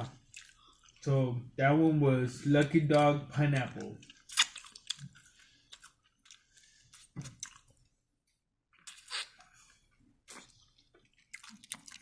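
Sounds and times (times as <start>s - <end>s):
chewing and biting food: 0.2s - 1.0s, 3.7s - 7.9s, 8.8s - 12.0s.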